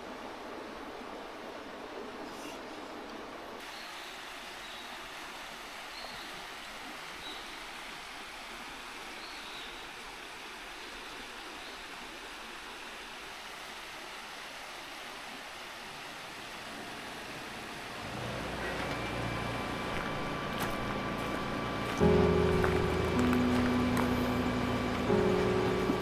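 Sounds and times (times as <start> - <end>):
river rushing: 13.3 - 26.0.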